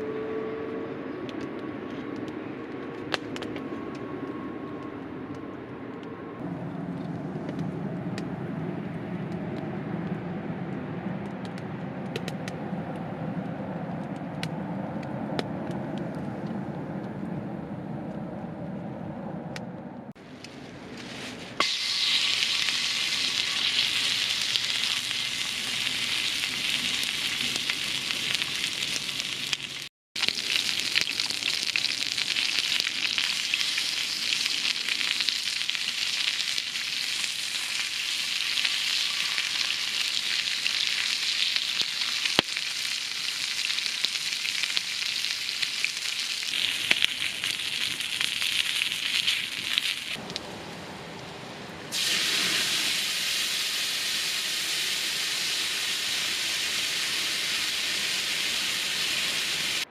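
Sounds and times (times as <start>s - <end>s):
food sizzling in a pan: 21.6s - 50.2s, 51.9s - 59.8s.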